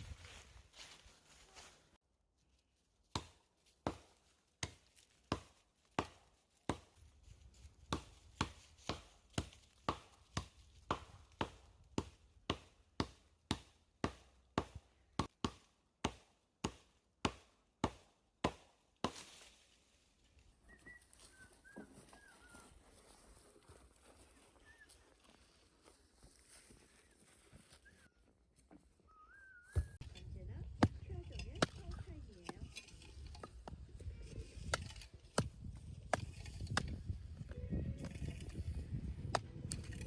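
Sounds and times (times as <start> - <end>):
axe chopping wood: 3.1 - 6.9, 7.9 - 19.4, 30.1 - 32.8, 34.6 - 37.0.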